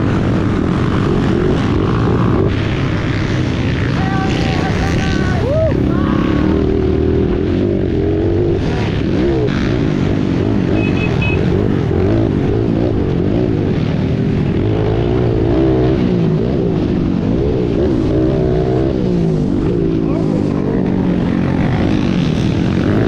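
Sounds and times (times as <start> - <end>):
dirt bike engines revving: 0.0 - 23.0
short beep: 10.7 - 11.6.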